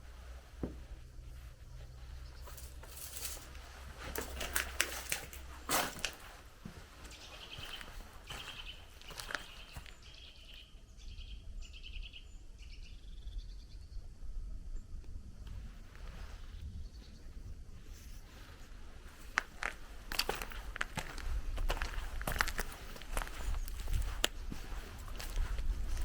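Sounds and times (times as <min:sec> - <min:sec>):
low steady rumble: 0:00.0 - 0:05.6
footsteps crunching on forest path: 0:00.0 - 0:10.1, 0:18.2 - 0:26.0.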